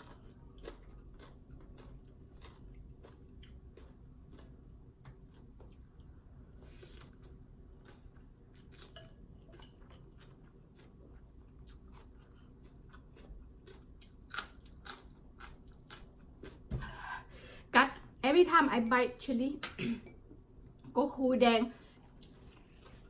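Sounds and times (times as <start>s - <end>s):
wet chewing and crunching: 0.0s - 16.7s, 21.9s - 23.0s.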